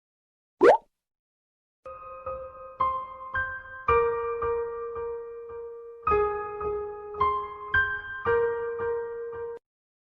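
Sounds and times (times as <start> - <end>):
soft piano melody: 1.9 - 9.6.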